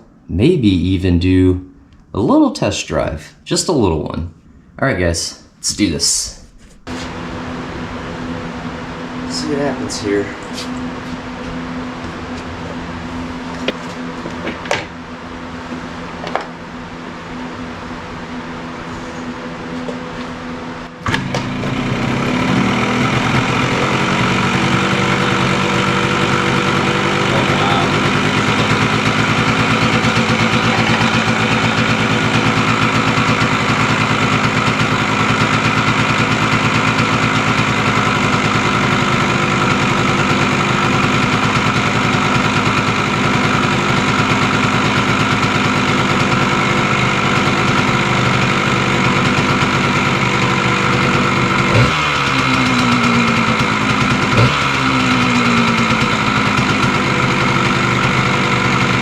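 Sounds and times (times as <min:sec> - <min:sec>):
engine throttle blips: 0:04.4 - 0:59.0
two-stroke motorcycle engine idling: 0:21.0 - 0:59.0.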